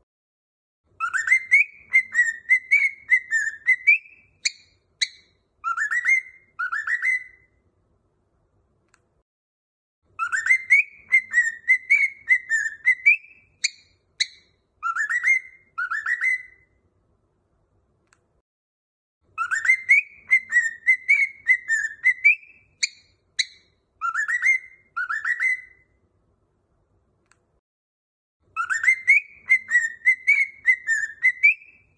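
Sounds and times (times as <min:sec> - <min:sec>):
cockatiel chirps: 0:00.9 - 0:07.6, 0:10.2 - 0:16.8, 0:19.3 - 0:26.0, 0:28.5 - 0:31.9
cockatiel whistling a tune: 0:00.9 - 0:07.6, 0:10.1 - 0:16.8, 0:19.3 - 0:26.0, 0:28.5 - 0:31.9.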